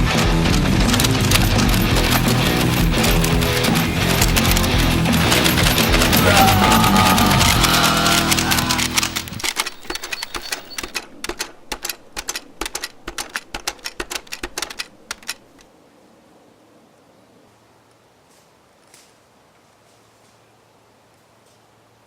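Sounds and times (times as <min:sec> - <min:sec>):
music: 0:00.0 - 0:09.4
rapid sharp clicks: 0:00.0 - 0:15.7.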